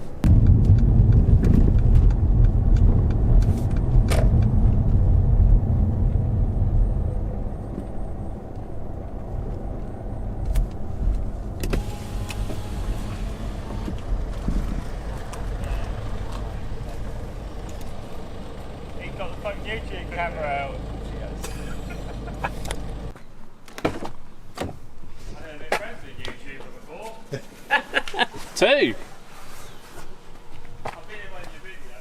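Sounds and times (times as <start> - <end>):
car engine rumbling: 0.0 - 23.2.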